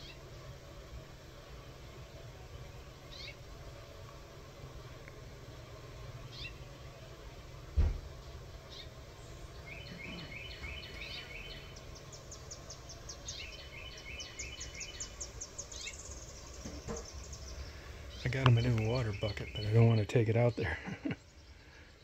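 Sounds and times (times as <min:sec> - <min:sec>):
small birds chirping: 0:00.0 - 0:00.3, 0:02.0 - 0:04.0, 0:04.9 - 0:07.3, 0:08.2 - 0:22.0
low background hum: 0:00.0 - 0:22.0
low thump: 0:07.7 - 0:08.1.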